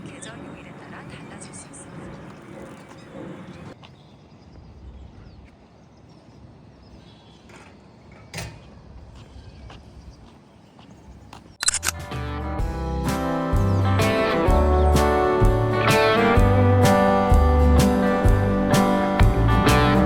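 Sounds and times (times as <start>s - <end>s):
guitar music: 11.9s - 20.0s.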